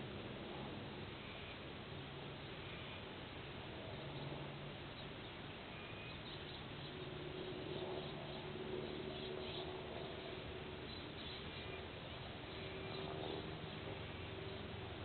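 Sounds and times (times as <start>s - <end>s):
low hum: 0.0s - 15.0s
steady background hiss: 0.0s - 15.0s.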